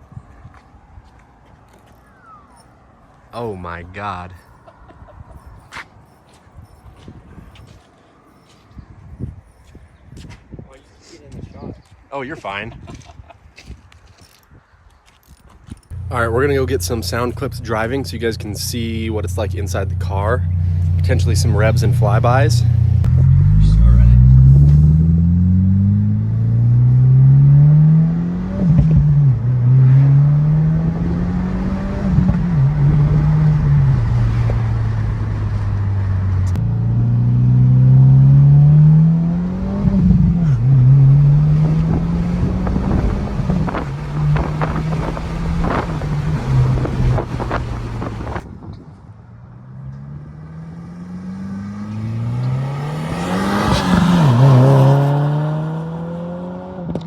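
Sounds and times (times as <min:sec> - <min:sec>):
car engine accelerating: 0:15.9 - 0:48.5, 0:49.4 - 0:57.0
exhaust pops and crackles: 0:28.7 - 0:29.2, 0:41.7 - 0:48.9.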